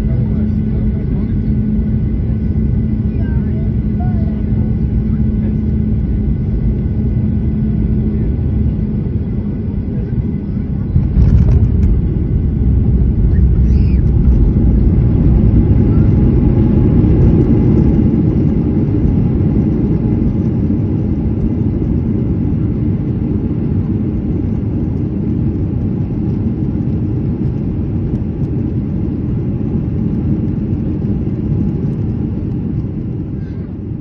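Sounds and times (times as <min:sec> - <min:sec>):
jet engines rumbling in cabin: 0:00.0 - 0:34.0
airflow: 0:33.2 - 0:34.0.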